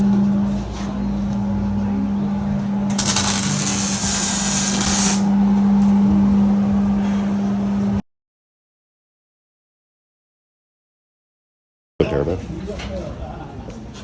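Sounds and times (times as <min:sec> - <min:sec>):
machine hum: 0:00.0 - 0:08.0.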